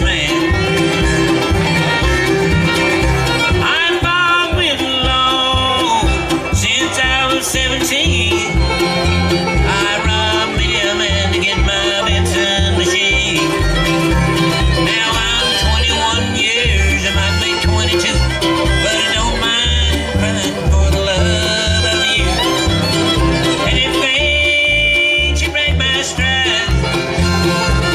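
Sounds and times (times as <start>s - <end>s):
banjo: 0.0s - 27.9s
bluegrass band playing: 0.0s - 27.9s
fiddle: 0.0s - 27.9s.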